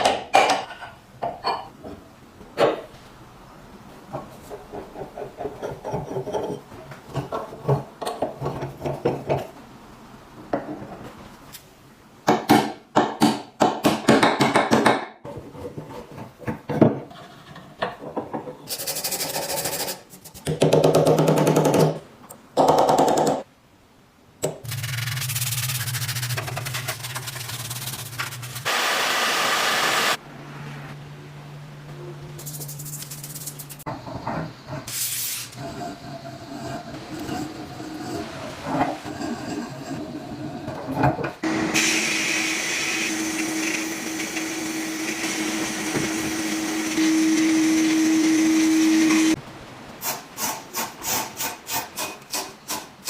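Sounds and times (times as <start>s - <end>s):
rubbing and filing strokes: 18.7s - 20.4s, 24.7s - 28.7s
scraping strokes: 24.7s - 28.7s
power tool running: 28.7s - 30.2s, 41.4s - 49.4s.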